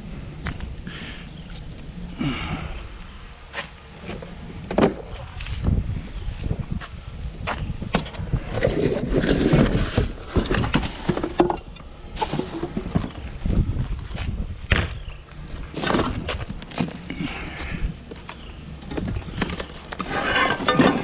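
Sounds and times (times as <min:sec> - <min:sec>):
scrap metal knocks and clanks: 0:08.6 - 0:13.2, 0:19.0 - 0:21.0.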